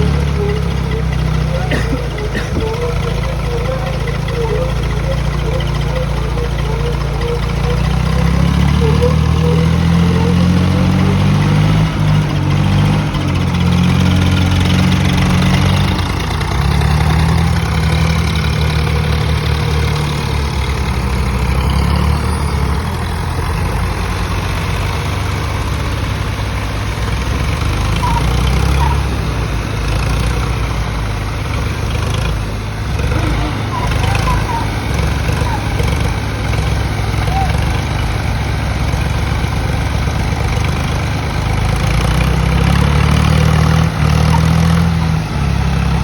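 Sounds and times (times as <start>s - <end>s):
tractor diesel engines under load: 0.0s - 46.0s.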